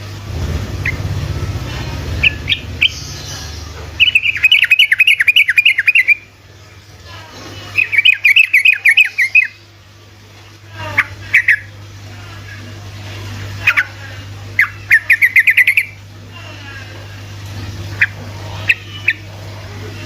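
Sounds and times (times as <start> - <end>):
steady low hum: 0.0 - 20.0
bird calling with sharp notes: 2.2 - 6.3, 7.8 - 9.6, 14.6 - 16.0.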